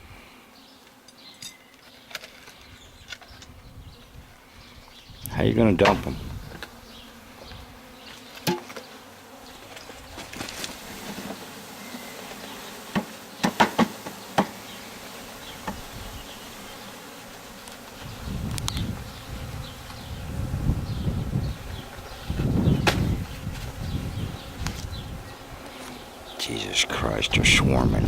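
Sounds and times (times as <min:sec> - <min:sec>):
honey bees buzzing: 0:00.0 - 0:28.0
sharp knocks: 0:12.9 - 0:14.6, 0:22.8 - 0:23.2.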